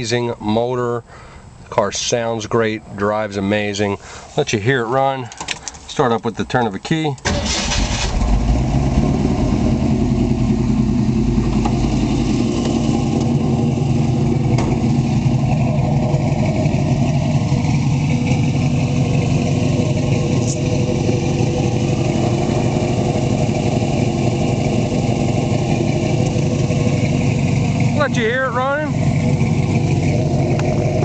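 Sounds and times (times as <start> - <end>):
car engine starting and idling: 7.1 - 31.0.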